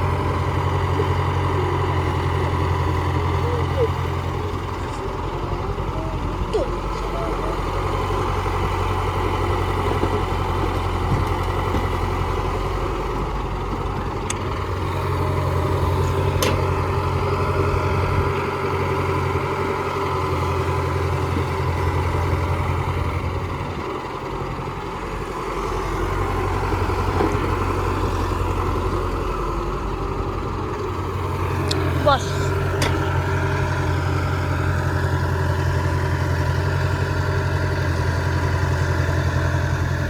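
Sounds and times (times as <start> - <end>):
heavy diesel engines droning: 0.0 - 40.0.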